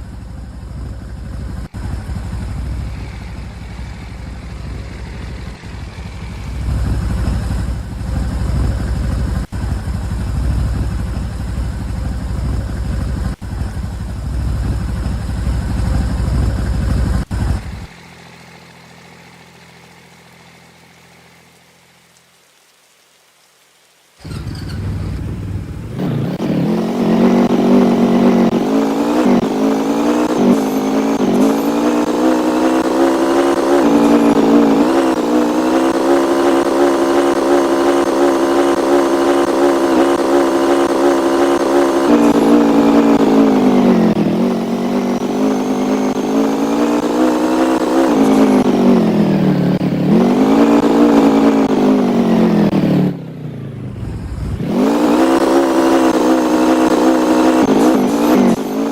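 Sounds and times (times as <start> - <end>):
vehicle engine accelerating: 0.0 - 21.4, 24.2 - 58.9.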